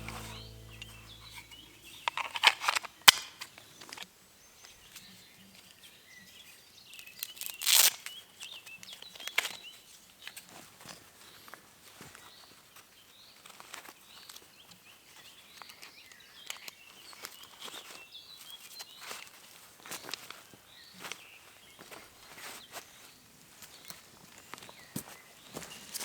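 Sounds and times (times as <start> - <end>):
music: 0.0 - 2.0.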